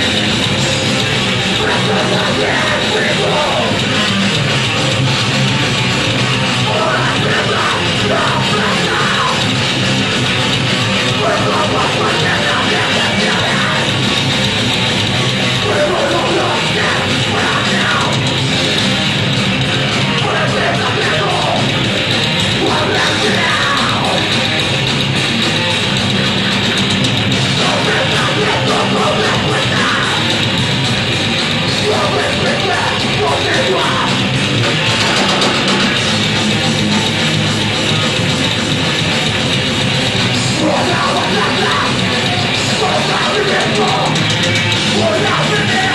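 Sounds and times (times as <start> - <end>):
punk metal band playing live: 0.0 - 45.9
shouted vocals: 1.5 - 4.0, 6.6 - 9.6, 11.0 - 14.0, 15.5 - 18.3, 19.9 - 21.8, 22.5 - 24.4, 27.5 - 30.4, 31.7 - 36.0, 40.3 - 45.9.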